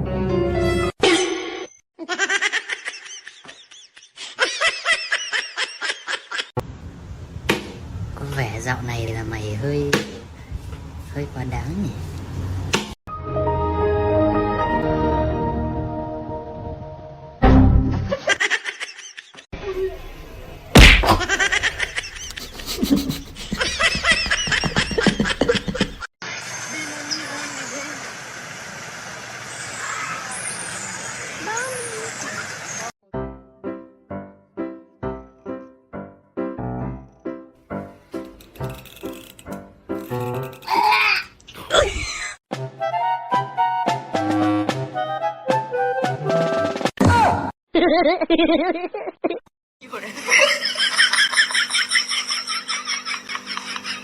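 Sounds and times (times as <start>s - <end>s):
loud smack: 7.5s - 7.8s, 20.8s - 21.4s
high-pitched laughing: 21.2s - 26.1s, 40.6s - 42.4s.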